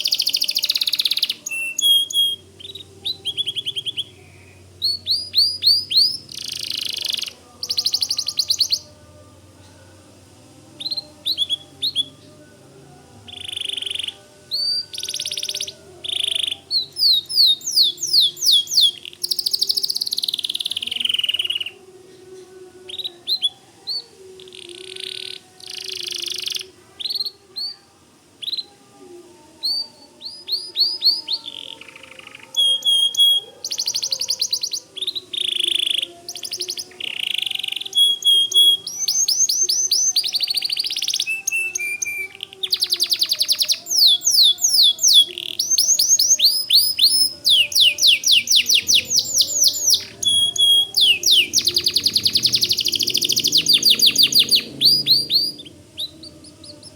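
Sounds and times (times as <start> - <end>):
canary singing: 0.0 - 56.9.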